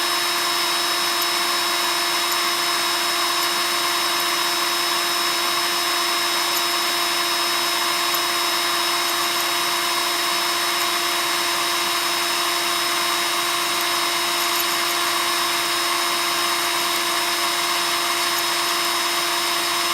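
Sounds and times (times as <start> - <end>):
electric drill motor whine: 0.0 - 19.9.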